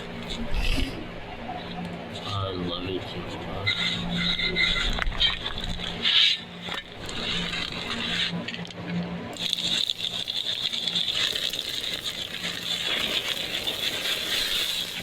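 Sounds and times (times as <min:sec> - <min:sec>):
meat sizzling over open fire: 0:09.4 - 0:15.0.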